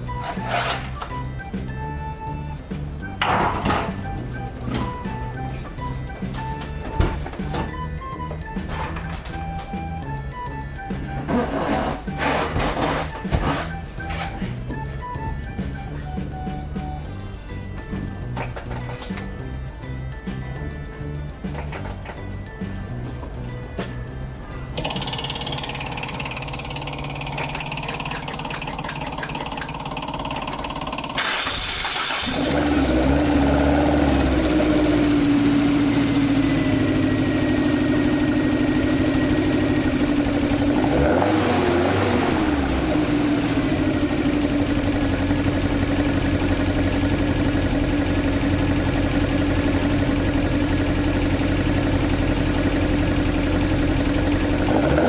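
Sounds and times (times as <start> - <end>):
car engine starting and idling: 0.0 - 55.0
car engine revving: 11.2 - 13.8, 25.5 - 55.0.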